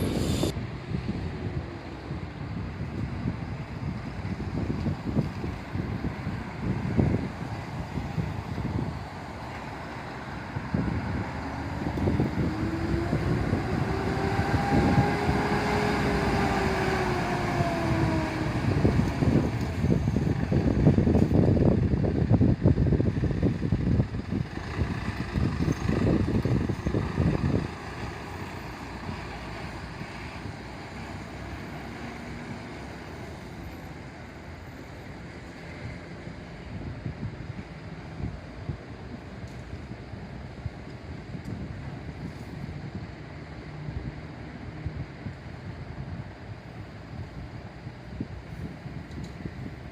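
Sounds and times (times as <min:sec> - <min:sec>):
wind on microphone: 0:00.0 - 0:32.7, 0:35.7 - 0:49.9
road traffic noise: 0:00.0 - 0:49.9
vehicle engine rumble: 0:00.0 - 0:49.9
loud vehicle passing: 0:09.7 - 0:20.5
fire truck siren wailing: 0:10.5 - 0:20.8.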